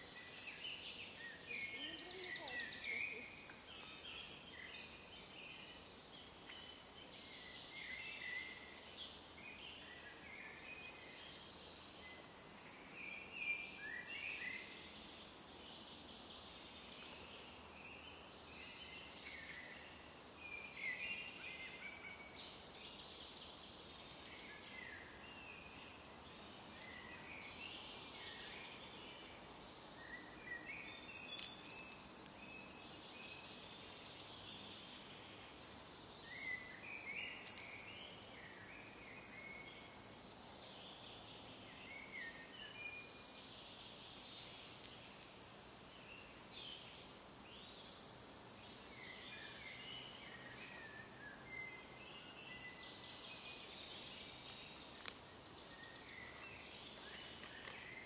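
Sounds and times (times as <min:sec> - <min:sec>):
faint background hiss: 0:00.0 - 0:58.0
songbirds chirping and trilling: 0:00.0 - 0:58.0.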